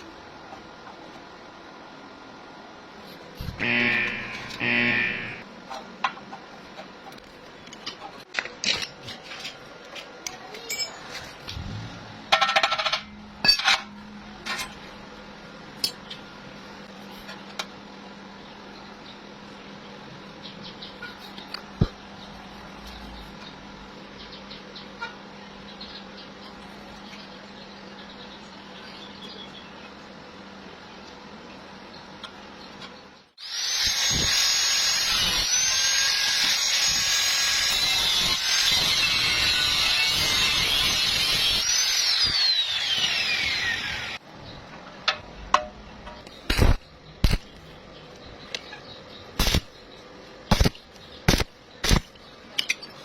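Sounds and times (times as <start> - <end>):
steady low hum: 0.0 - 8.0
low hum: 3.2 - 5.5
power tool grinding metal: 3.6 - 5.4, 33.4 - 44.2
metal pieces clinking: 10.5 - 11.2.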